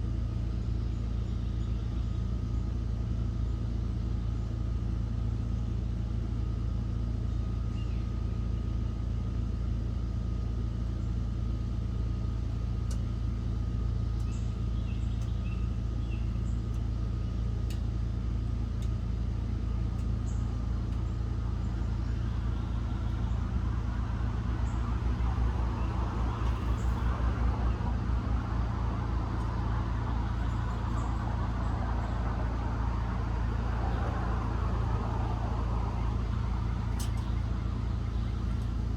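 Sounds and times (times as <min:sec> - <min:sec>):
low motor hum: 0:00.0 - 0:38.9
pulsing low rumble: 0:14.1 - 0:38.9.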